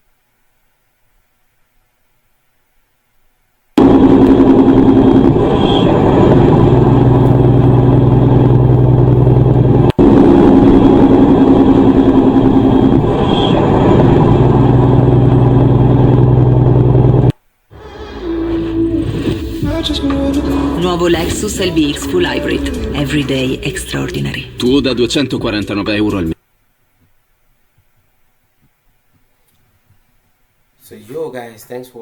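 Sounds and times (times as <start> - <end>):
vehicle engine running: 3.8 - 17.3, 18.6 - 26.3.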